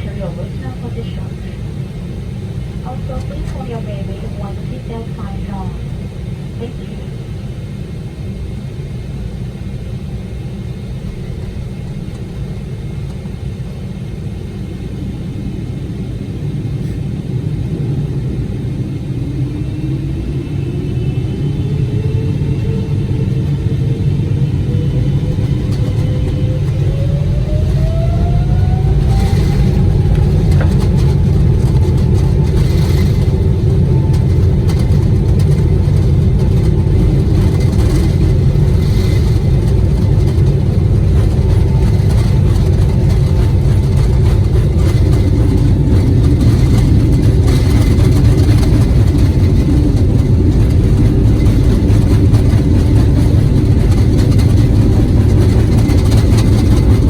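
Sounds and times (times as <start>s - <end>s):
jet engines whining: 0.0s - 57.0s
loud cabin rumble: 0.0s - 57.0s
wheels knocking on runway: 25.4s - 57.0s.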